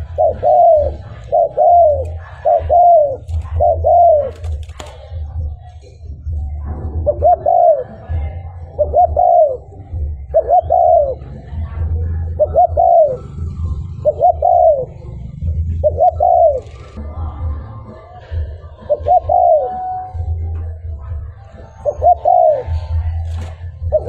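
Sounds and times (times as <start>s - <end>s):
dove cooing: 0.0s - 17.0s, 18.2s - 24.0s.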